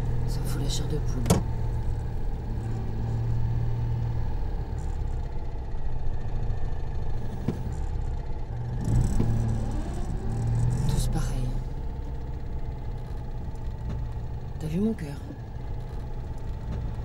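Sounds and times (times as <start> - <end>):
car engine humming: 0.0 - 17.0.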